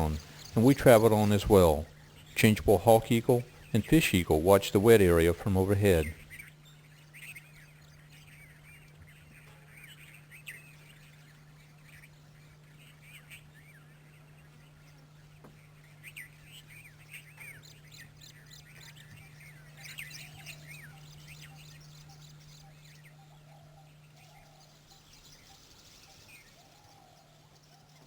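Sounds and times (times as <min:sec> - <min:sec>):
birds chirping: 0:00.0 - 0:28.0
low steady hum: 0:00.0 - 0:28.0.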